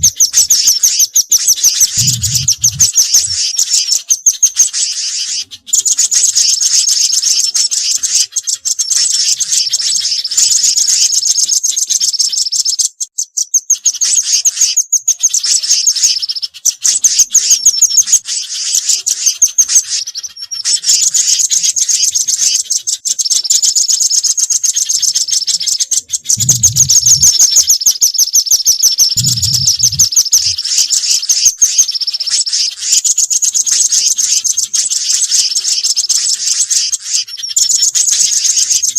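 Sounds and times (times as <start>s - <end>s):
small songbirds chirping: 0.0s - 38.9s
low thumps: 2.0s - 2.9s, 26.4s - 27.3s.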